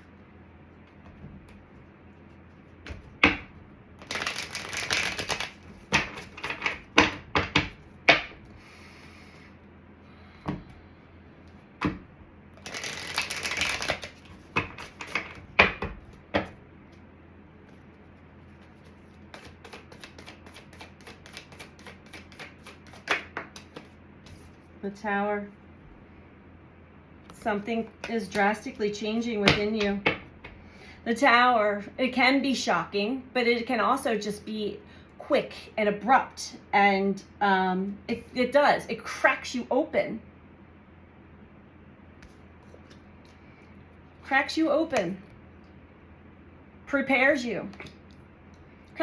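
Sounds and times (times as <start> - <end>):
cards being shuffled: 0.9 - 8.3, 12.6 - 17.0, 17.6 - 24.7.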